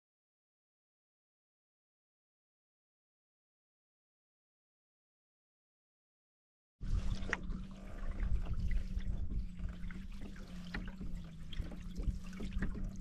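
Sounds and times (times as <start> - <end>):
low hum and rumble: 6.8 - 13.0
paddle splashing water: 6.8 - 13.0.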